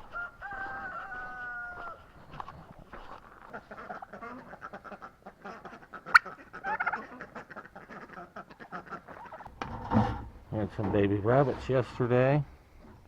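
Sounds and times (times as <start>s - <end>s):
poultry calling: 0.0s - 9.5s.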